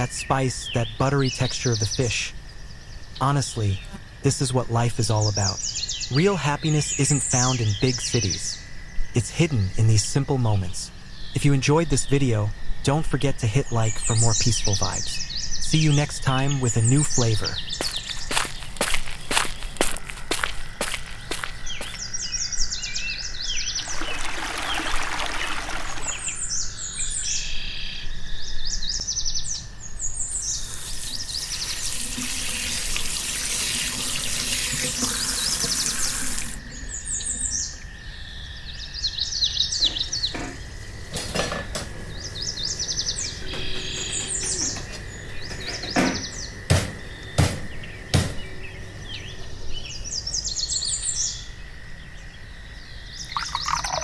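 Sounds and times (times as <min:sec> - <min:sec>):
small birds chirping: 0:00.0 - 0:54.0
running water: 0:23.8 - 0:26.5, 0:30.7 - 0:36.7, 0:53.3 - 0:54.0
sharp knocks: 0:45.6 - 0:48.5.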